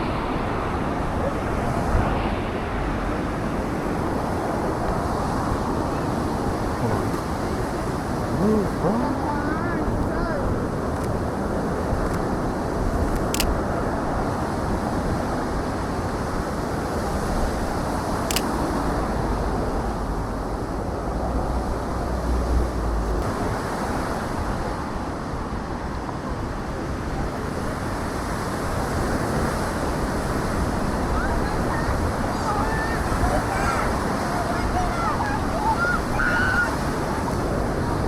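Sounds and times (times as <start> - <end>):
city traffic noise: 0.0 - 38.0
wind on microphone: 0.0 - 38.0
sharp high clicks: 13.1 - 13.6, 18.3 - 18.6.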